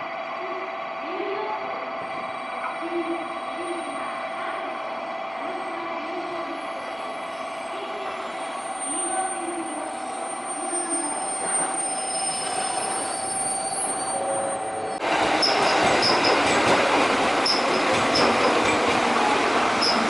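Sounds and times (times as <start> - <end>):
train hum with high tones: 0.0 - 20.0
train rushing noise: 0.0 - 20.0.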